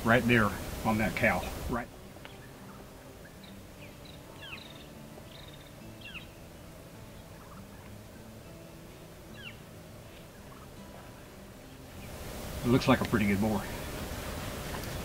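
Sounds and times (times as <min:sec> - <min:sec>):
outdoor background noise: 0:00.0 - 0:15.0
faint bird chirps: 0:02.2 - 0:12.2.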